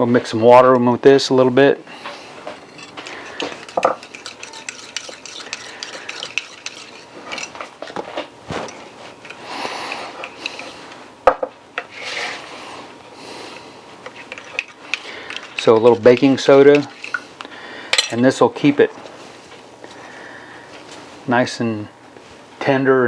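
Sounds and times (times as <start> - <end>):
spoon swishing in water: 2.7 - 7.8
spoon clinking against dish: 2.8 - 7.6.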